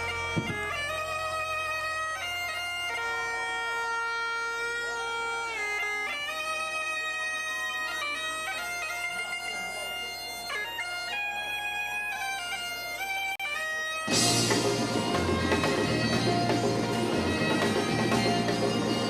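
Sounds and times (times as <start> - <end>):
wind instrument long notes: 12.9 - 19.0.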